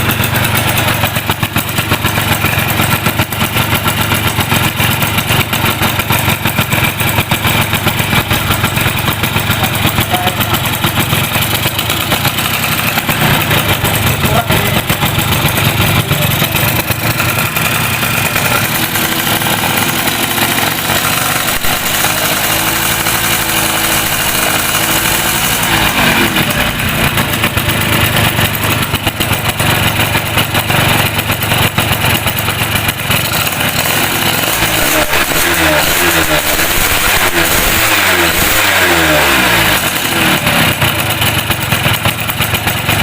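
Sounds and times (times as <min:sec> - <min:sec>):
motorcycle engine idling and revving: 0:00.0 - 0:43.0.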